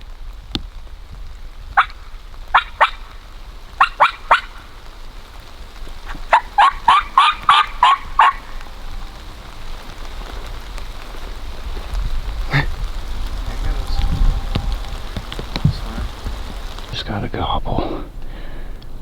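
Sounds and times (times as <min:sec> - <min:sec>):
turkey yelps: 0:01.7 - 0:04.9, 0:06.0 - 0:10.3.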